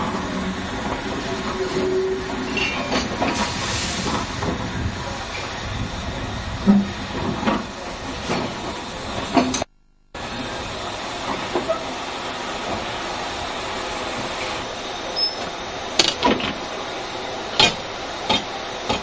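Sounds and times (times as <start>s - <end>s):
train wagons rolling on track: 0.0s - 19.0s.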